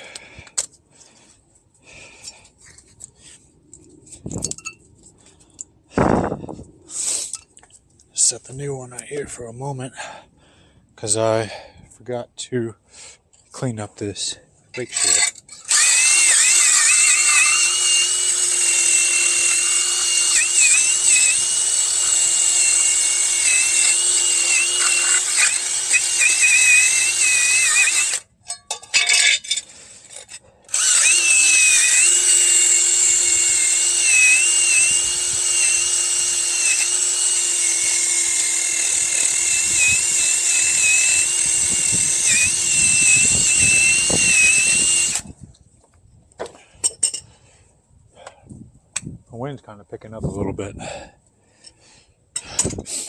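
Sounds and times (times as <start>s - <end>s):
power tool motor running: 14.9s - 28.2s, 30.7s - 45.3s.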